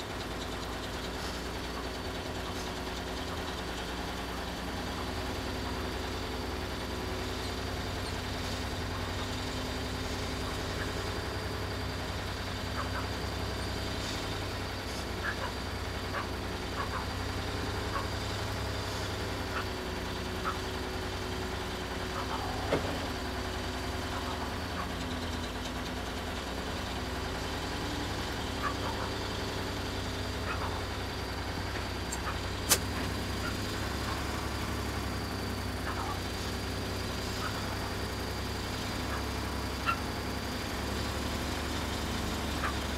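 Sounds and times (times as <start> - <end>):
engine running at low speed: 0.0 - 42.9
sharp click: 32.1 - 33.0.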